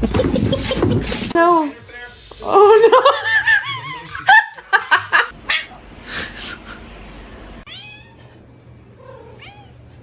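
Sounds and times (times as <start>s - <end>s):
cat meowing: 7.7s - 8.2s, 9.2s - 9.8s.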